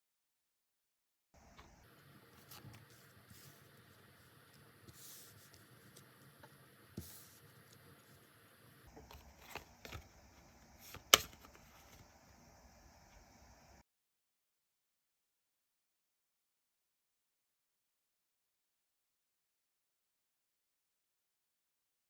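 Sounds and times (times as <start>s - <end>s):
cards tapping and sliding: 9.0s - 12.1s.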